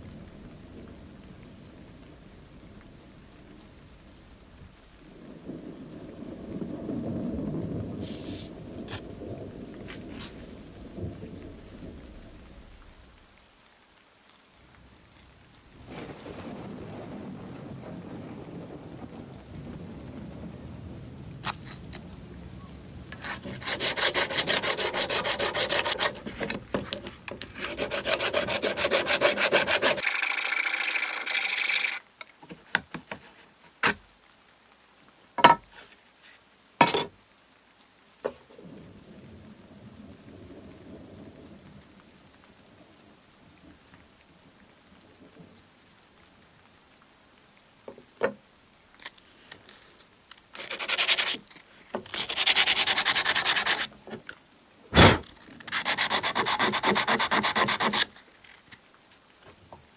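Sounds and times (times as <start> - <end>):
rasping at knife handle: 23.2 - 30.0, 50.6 - 51.4, 52.1 - 53.9, 55.0 - 58.1.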